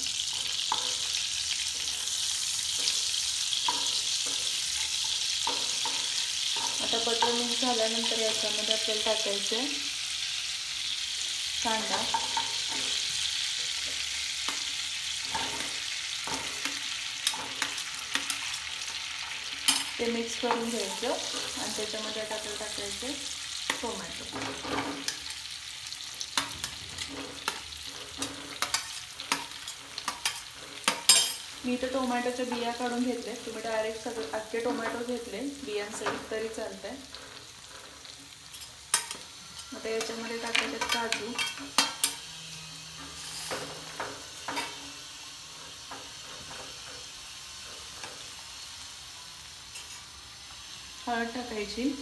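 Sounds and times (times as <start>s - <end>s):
onions sizzling in oil: 0.0s - 52.0s
steel spoon clinking on steel plate: 28.5s - 31.5s.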